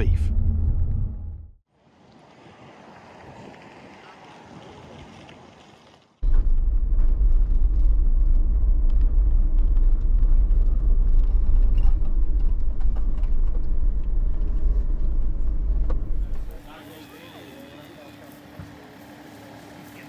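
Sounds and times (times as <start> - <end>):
vehicle engine and road noise: 0.0 - 1.6, 6.2 - 20.0.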